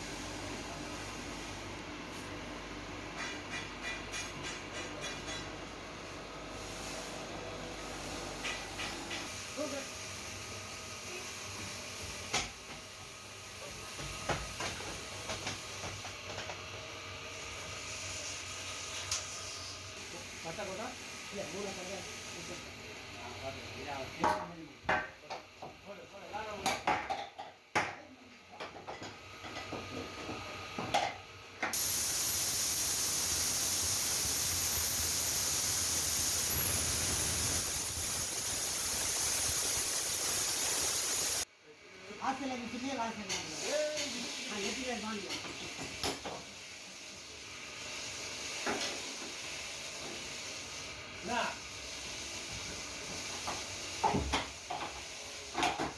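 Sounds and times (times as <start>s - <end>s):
steady hiss: 31.8s - 41.5s.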